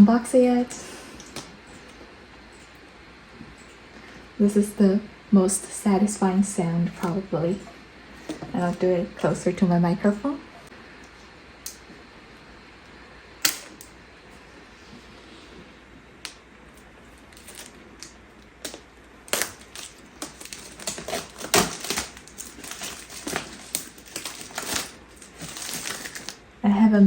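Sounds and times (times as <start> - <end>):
paper tear strips ripping: 17.2 - 26.4.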